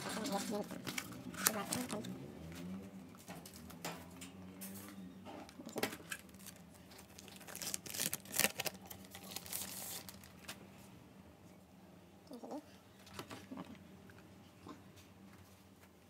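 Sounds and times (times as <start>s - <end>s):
faint steady hum: 0.0s - 16.0s
rustling peeling noise: 6.0s - 10.6s.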